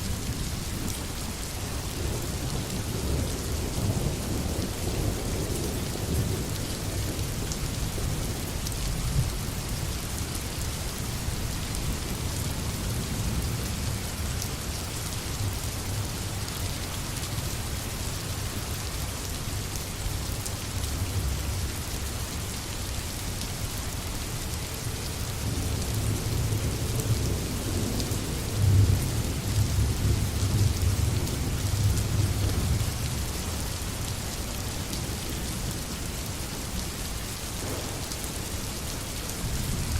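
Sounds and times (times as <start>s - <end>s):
low rumble of thunder: 0.0s - 16.6s, 25.4s - 39.9s
steady rain falling: 0.0s - 39.9s.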